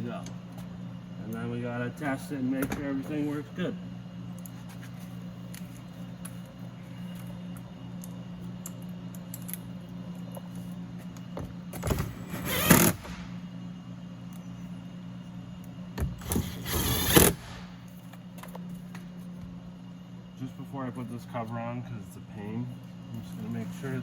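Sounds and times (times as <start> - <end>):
steady low hum: 0.0 - 24.0
door lock actuator whirr: 11.8 - 13.4, 16.0 - 17.8.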